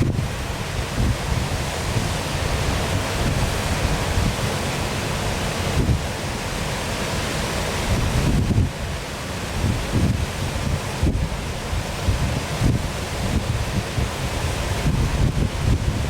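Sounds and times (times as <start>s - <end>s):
wind buffeting microphone: 0.0s - 4.7s, 5.6s - 6.2s, 7.7s - 8.9s, 9.5s - 16.0s
waterfall rushing: 0.0s - 16.0s.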